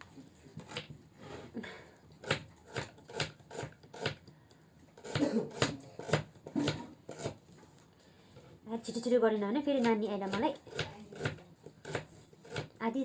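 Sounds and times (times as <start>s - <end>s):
knife chopping on cutting board: 2.2s - 4.2s, 5.0s - 7.4s, 9.8s - 12.7s.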